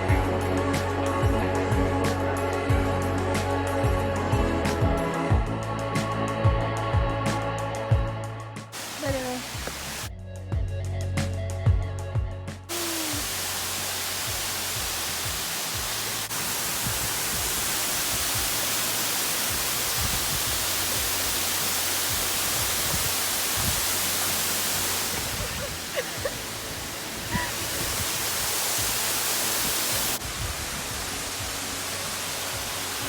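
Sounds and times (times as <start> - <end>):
waterfall rushing: 8.8 - 10.1, 12.7 - 33.0.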